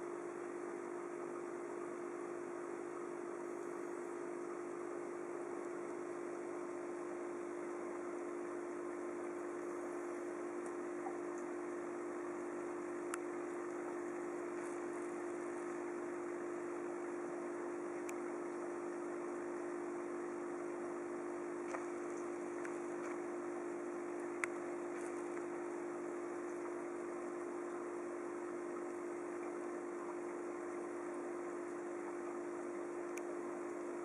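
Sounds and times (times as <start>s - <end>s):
aquarium pump humming and hissing: 0.0s - 34.0s
faint clicks: 13.0s - 13.8s, 18.0s - 18.2s, 24.2s - 25.5s, 33.1s - 33.3s.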